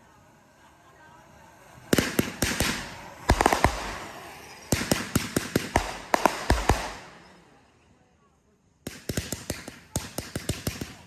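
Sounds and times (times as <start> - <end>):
fireworks crackle: 1.3 - 7.8
fireworks bangs: 1.6 - 7.7.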